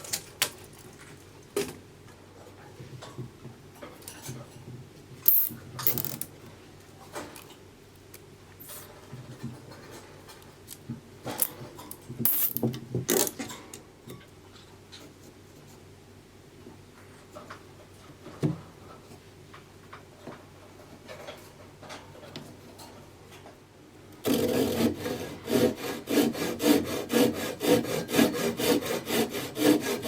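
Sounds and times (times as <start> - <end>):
tools clicking and tapping: 5.3 - 6.3, 11.3 - 14.3.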